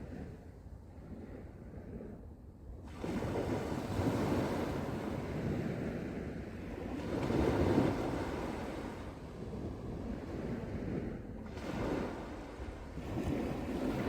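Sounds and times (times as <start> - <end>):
wind: 0.0 - 14.0
sea waves breaking on beach: 2.9 - 14.0.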